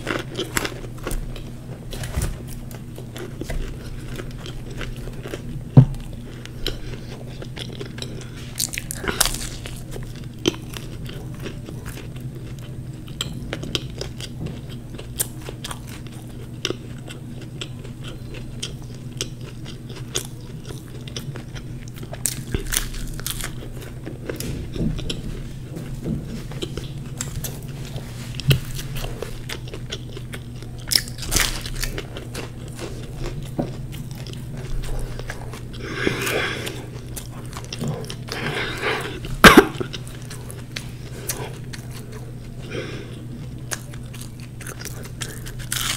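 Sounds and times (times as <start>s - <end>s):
crunching fried pastry: 0.0s - 45.9s.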